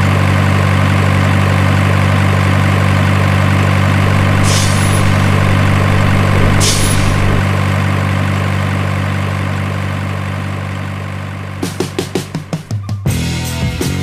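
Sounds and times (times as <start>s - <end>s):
truck engine idling: 4.0s - 7.5s.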